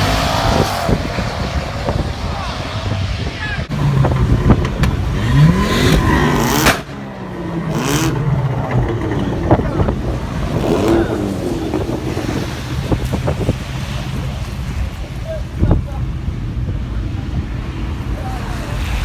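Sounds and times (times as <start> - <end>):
sharp loud crack: 0.0 - 11.6
sports car engine revving: 0.0 - 19.0.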